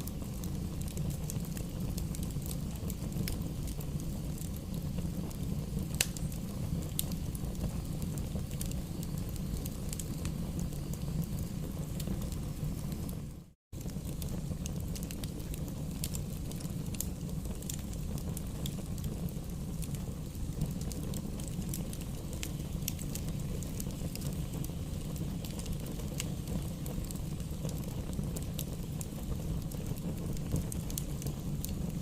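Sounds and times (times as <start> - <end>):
logs crackling and popping: 0.0 - 32.0
rumble of flames: 0.0 - 32.0.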